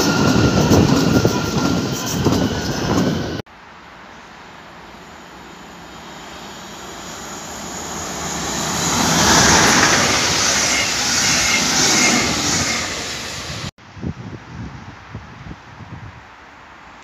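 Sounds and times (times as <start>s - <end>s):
high wheel squeal: 0.0s - 3.4s, 4.9s - 13.7s
train passing on rails: 0.0s - 13.7s.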